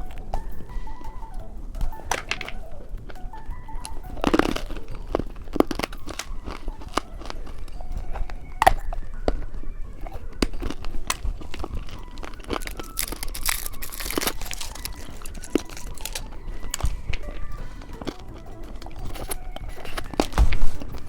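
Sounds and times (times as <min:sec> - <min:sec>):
candy crunching: 0:00.0 - 0:21.0
plastic wrapper crinkling and tearing: 0:02.0 - 0:21.0.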